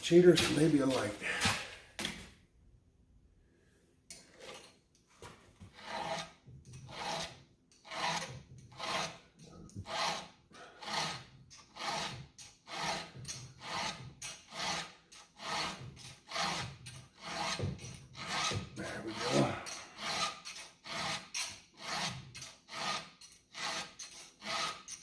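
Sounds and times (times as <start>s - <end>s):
hand file rasping on chainsaw chain: 5.7s - 25.0s.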